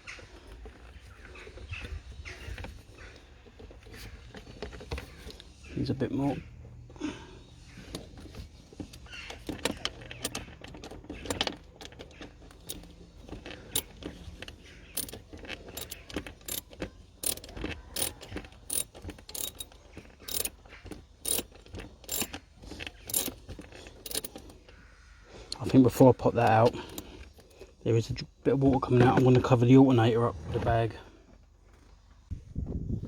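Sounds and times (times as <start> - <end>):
ratchet wrench clicking: 9.4 - 10.5, 12.5 - 14.0, 15.0 - 22.4, 23.0 - 24.5, 26.6 - 27.1.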